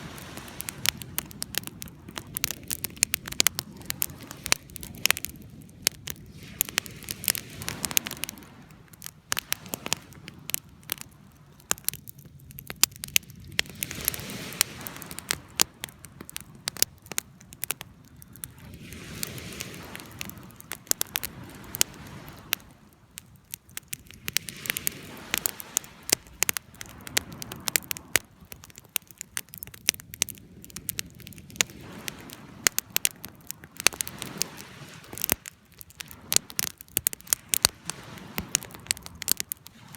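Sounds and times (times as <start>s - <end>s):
flame rushing: 0.0s - 11.1s, 12.8s - 22.8s, 23.8s - 39.9s
fire crackling and popping: 0.0s - 39.9s.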